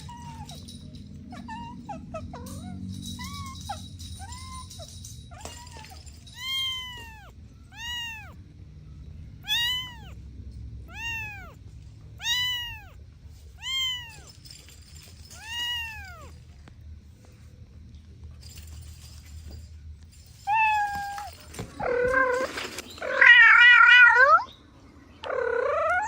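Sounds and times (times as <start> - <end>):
kitten meowing: 6.4 - 8.4, 9.4 - 10.2, 10.9 - 11.6, 12.2 - 13.0, 13.6 - 14.3, 15.4 - 16.3.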